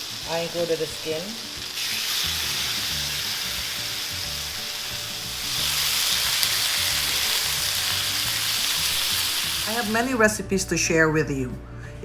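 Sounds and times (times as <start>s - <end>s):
meat sizzling in a pan: 0.0s - 10.2s.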